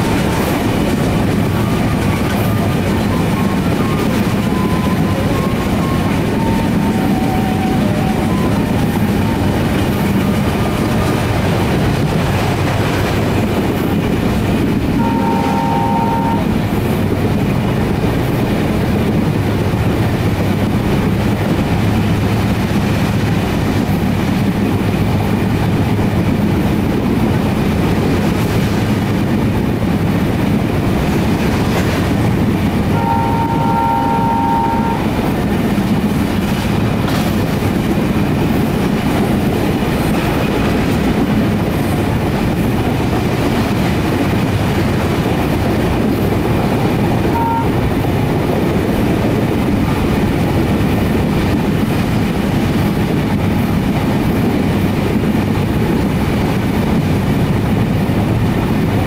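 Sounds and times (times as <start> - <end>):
train horn blasts: 0.0 - 11.2, 14.9 - 16.6, 32.8 - 35.2, 47.0 - 48.0
train coaches rumbling and rattling: 0.0 - 59.0.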